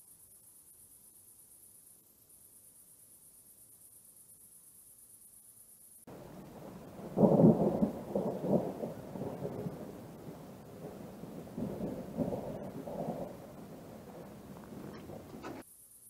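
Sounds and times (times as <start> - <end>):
thunder rumbling: 6.1 - 15.6.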